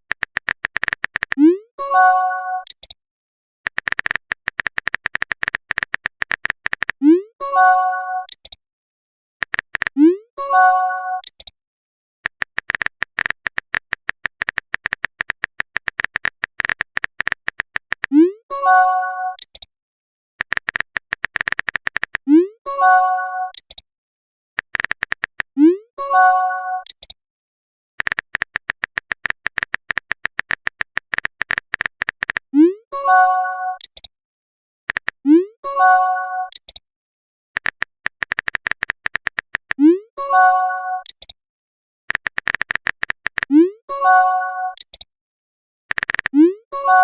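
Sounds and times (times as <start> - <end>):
keyboard typing clicks: 0.1 - 1.6, 2.6 - 3.0, 3.7 - 7.2, 8.2 - 8.6, 9.4 - 10.2, 11.2 - 11.6, 12.2 - 18.4, 19.3 - 19.7, 20.4 - 22.3, 23.5 - 23.8, 24.6 - 25.6, 26.8 - 27.2, 28.0 - 32.6, 33.8 - 34.1, 34.9 - 35.3, 36.5 - 36.8, 37.6 - 40.0, 41.0 - 41.4, 42.1 - 43.7, 44.7 - 45.1, 45.9 - 47.0.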